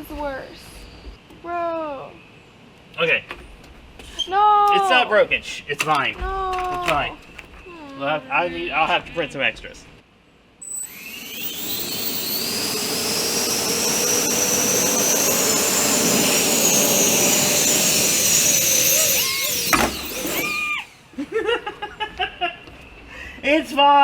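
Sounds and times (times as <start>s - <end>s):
ducted fans whining: 10.6s - 22.3s.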